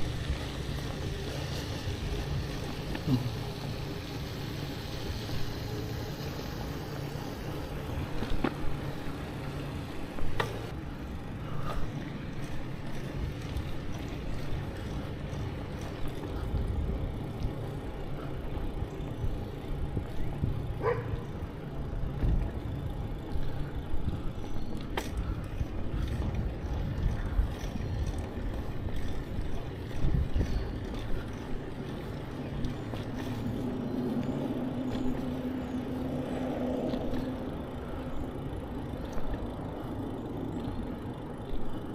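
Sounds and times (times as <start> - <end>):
bicycle tyre noise: 0.0 - 41.9
wind rumble on microphone: 11.9 - 39.7.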